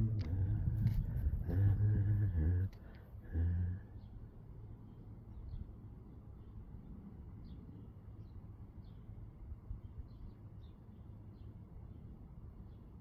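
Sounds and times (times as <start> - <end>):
low outdoor rumble: 0.0 - 5.6.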